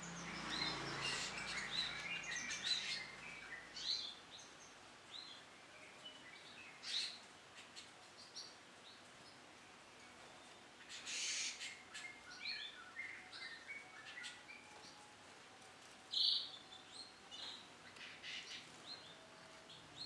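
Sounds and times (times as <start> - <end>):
canary chirping: 0.0 - 4.6.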